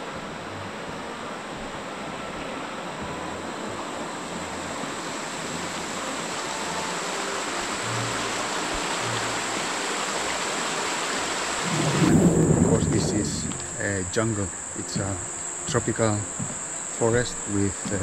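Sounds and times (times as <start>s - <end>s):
rushing hiss: 6.3s - 18.0s
thin high whine: 11.5s - 18.0s.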